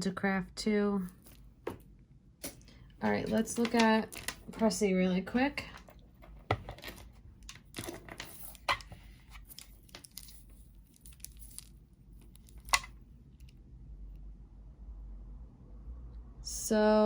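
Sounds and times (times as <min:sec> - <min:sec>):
jewelry clicking and rustling: 0:01.0 - 0:13.6.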